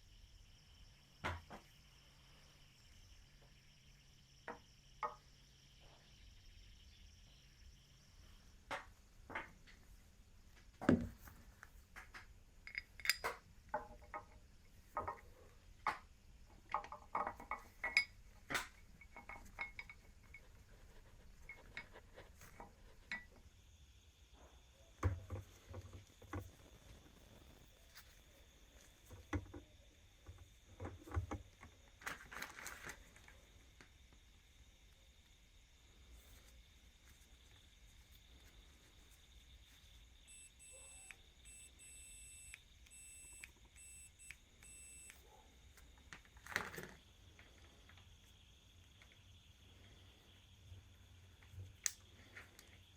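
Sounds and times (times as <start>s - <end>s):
metal tools clinking: 12.7s - 13.4s.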